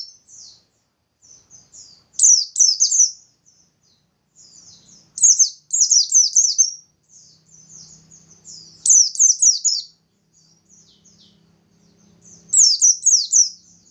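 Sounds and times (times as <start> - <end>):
bird singing high slurred notes: 0.0 - 13.9
bird twittering: 0.0 - 13.9.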